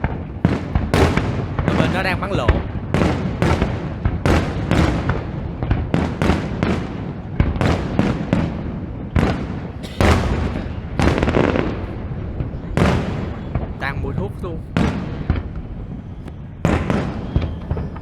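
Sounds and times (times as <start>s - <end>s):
continuous rumble: 0.0s - 18.0s
fireworks bangs and crackles: 0.0s - 18.0s.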